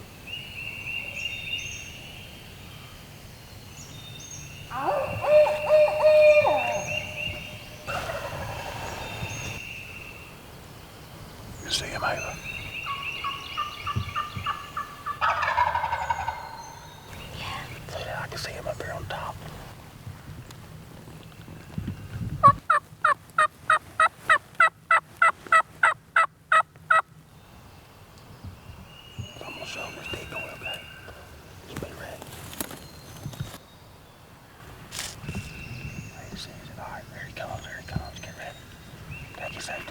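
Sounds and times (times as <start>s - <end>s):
songbirds singing and chirping: 0.0s - 19.7s, 20.4s - 39.9s
owl hooting: 4.7s - 10.2s
turkey gobbling: 4.8s - 9.6s, 12.9s - 16.9s, 22.4s - 27.0s.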